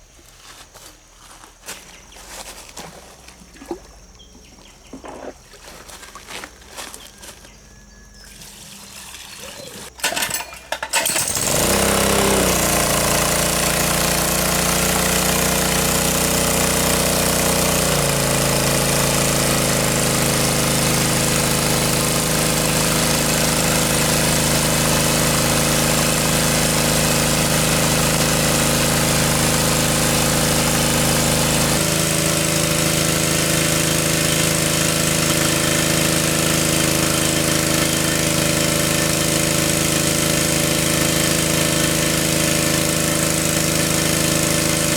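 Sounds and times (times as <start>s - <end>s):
small engine running: 5.9s - 44.9s.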